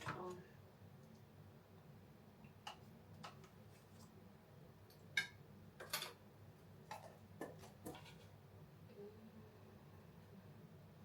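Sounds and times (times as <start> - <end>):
faint steady hum: 0.0 - 11.0
kitchen items clicking and knocking: 5.2 - 6.2.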